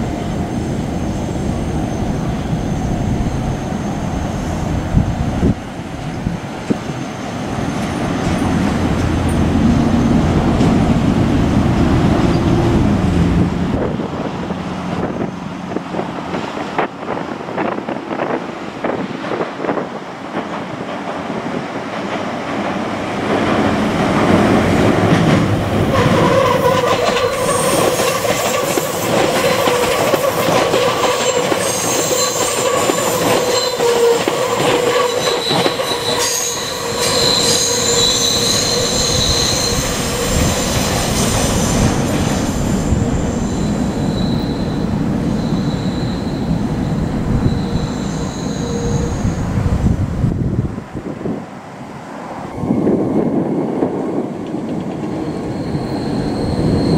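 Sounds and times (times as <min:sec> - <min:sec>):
train rumbling: 0:00.0 - 0:56.9
wheels clicking over rail joints: 0:20.4 - 0:36.3
high-pitched wheel squeal: 0:25.9 - 0:30.4, 0:31.0 - 0:49.7, 0:55.0 - 0:56.9.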